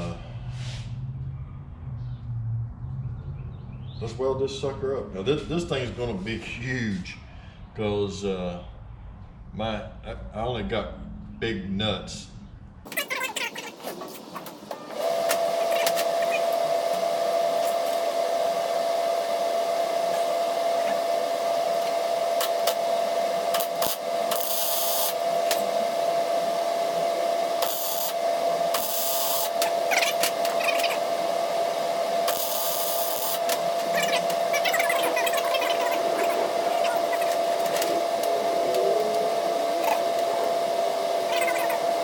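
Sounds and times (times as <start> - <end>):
electric welder humming: 12.9 - 42.0
hissing bursts of welding arc: 23.5 - 25.6, 27.6 - 31.0, 32.2 - 34.3.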